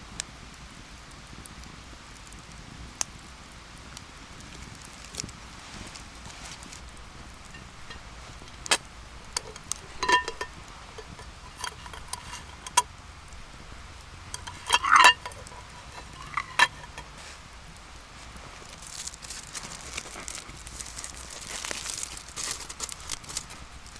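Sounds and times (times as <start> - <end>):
metal cookware clinking: 7.4 - 12.8, 14.3 - 17.2
utensils clattering: 7.4 - 12.8, 14.3 - 17.2.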